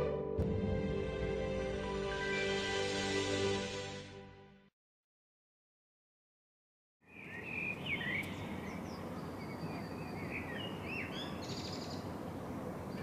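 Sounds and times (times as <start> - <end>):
birds chirping: 7.0 - 13.0.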